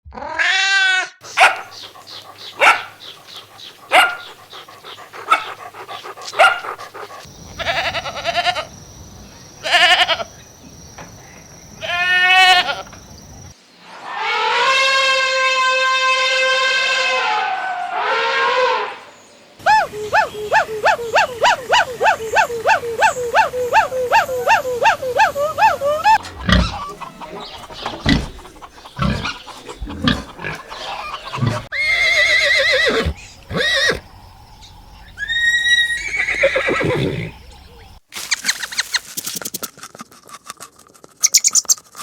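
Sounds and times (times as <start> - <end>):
farm animal calls: 1.2 - 8.7, 20.0 - 34.1, 35.1 - 38.9
low thumps: 26.2 - 30.7.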